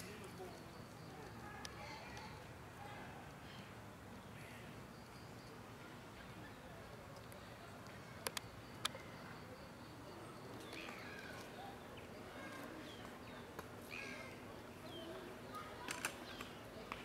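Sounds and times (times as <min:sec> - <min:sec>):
birds chirping faintly: 0:00.0 - 0:17.0
sharp clicks: 0:08.2 - 0:09.0, 0:15.9 - 0:17.0.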